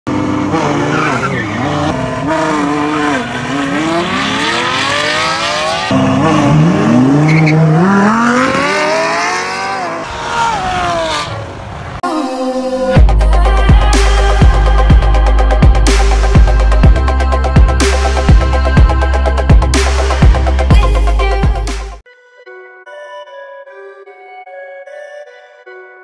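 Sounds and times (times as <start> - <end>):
car engines at full throttle: 0.1 - 12.0.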